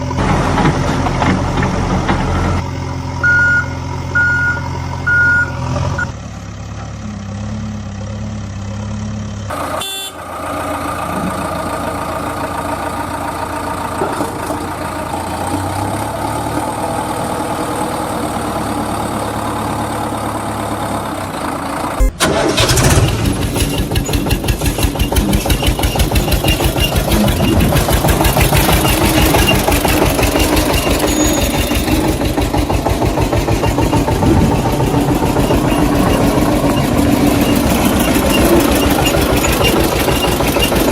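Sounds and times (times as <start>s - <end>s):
tractor engine idling: 0.0s - 40.9s
engine chugging fast: 9.4s - 40.9s.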